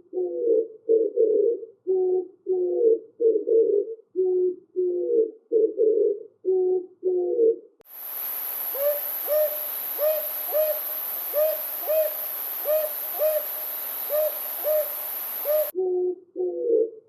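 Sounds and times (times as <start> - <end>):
low cooing calls: 0.0 - 17.0
steady hiss: 7.8 - 15.7
bird hooting calls: 8.4 - 16.9.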